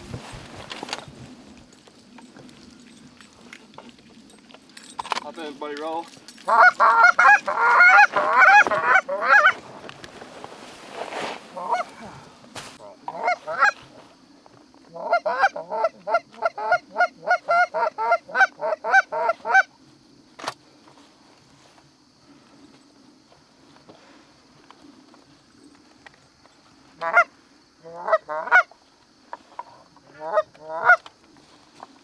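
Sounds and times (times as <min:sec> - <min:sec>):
goose honking and clucking: 0:06.4 - 0:09.6, 0:11.6 - 0:11.9, 0:13.1 - 0:13.8, 0:14.9 - 0:19.6, 0:27.0 - 0:28.7, 0:30.0 - 0:31.0.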